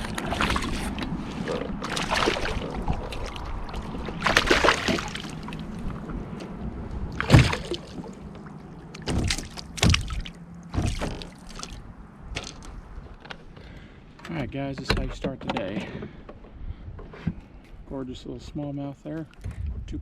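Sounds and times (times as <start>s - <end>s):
knocks and clunks: 9.0s - 11.7s, 14.2s - 17.4s.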